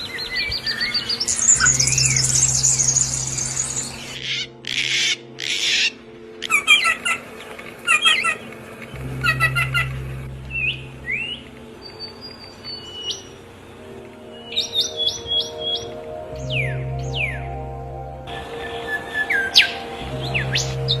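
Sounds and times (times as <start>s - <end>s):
low steady hum: 0.0s - 4.6s, 5.2s - 14.5s, 15.2s - 21.0s
rising whistled bird notes: 0.0s - 7.0s
rapid bird chirping: 0.0s - 7.2s
bird squawks: 0.7s - 8.5s.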